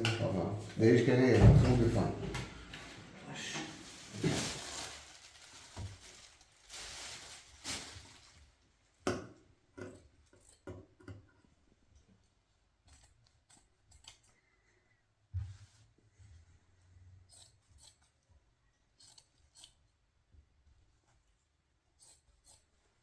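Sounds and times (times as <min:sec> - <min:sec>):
rustling: 0:01.4 - 0:08.7.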